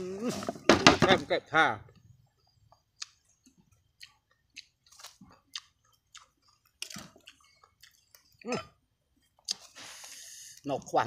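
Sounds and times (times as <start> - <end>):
person chewing food: 2.4 - 10.1.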